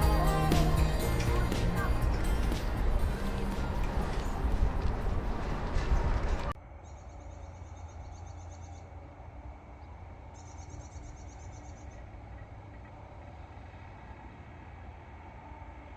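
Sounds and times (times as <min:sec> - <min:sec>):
music: 0:00.0 - 0:05.6
steady low rumble: 0:00.0 - 0:06.6.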